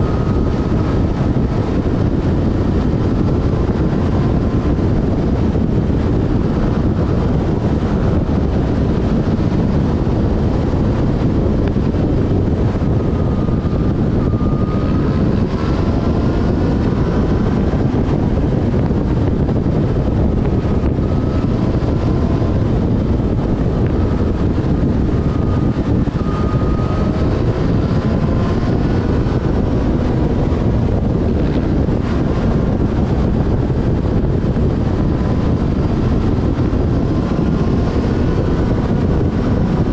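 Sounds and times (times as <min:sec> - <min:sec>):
motorcycle engine revving: 0:00.0 - 0:39.9
wind rush on microphone: 0:00.0 - 0:39.9.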